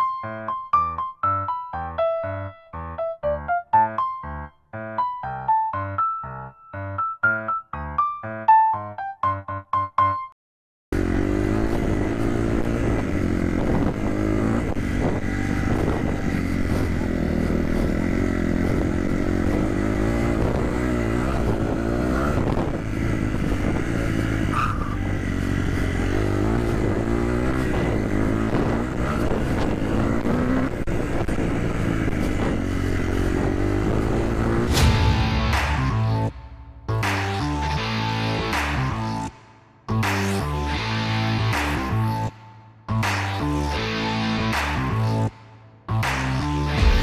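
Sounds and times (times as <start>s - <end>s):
motocross bike engine revving: 11.0s - 39.3s
steady rushing noise: 34.6s - 37.1s.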